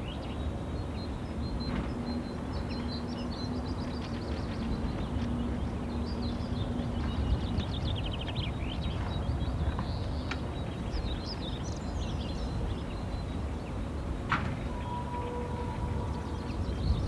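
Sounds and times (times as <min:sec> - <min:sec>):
songbirds chirping and trilling: 0:00.0 - 0:17.0.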